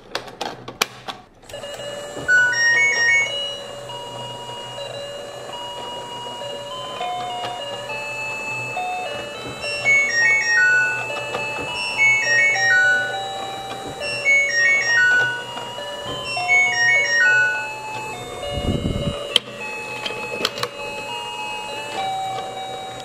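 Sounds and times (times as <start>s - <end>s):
held electronic tones: 1.5s - 23.0s
tinny electronic beeping jingle: 1.8s - 5.0s, 8.0s - 21.7s.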